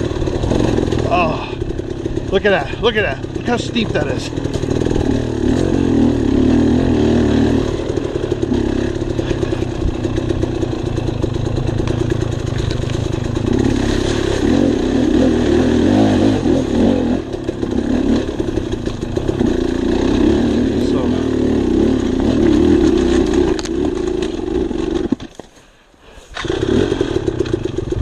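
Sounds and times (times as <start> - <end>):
dirt bike engine revving: 0.0 - 25.2, 26.3 - 28.0
bike clattering over rough ground: 0.2 - 5.8, 7.8 - 14.6, 22.1 - 25.6.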